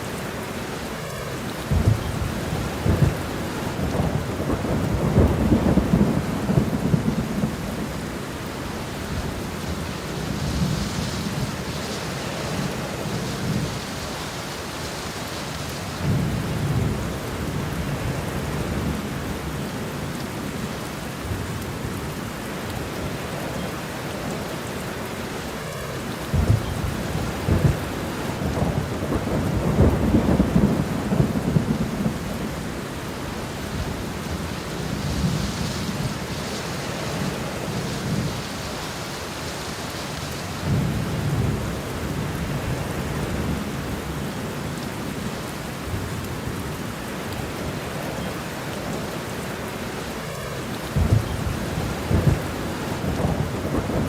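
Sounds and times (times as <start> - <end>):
heavy rain: 0.0 - 54.0
rolling thunder: 1.6 - 14.6, 26.2 - 39.1, 40.5 - 44.3, 50.3 - 54.0.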